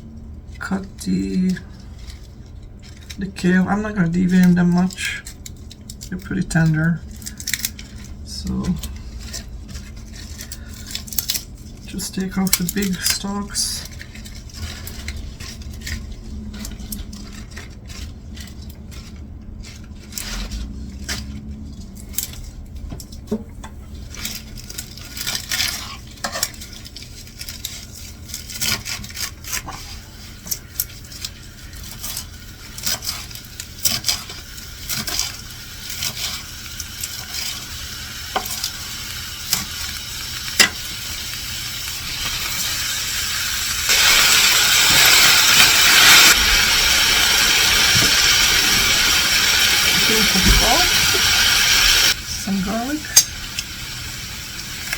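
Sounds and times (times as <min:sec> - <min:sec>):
loud frying hiss: 0:11.8 - 0:14.0, 0:29.6 - 0:54.9
onions sizzling in oil: 0:28.6 - 0:54.9.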